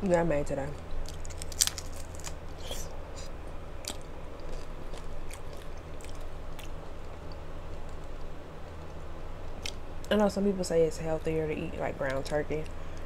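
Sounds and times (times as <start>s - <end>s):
crunchy taco shell chewing: 0.8s - 9.0s.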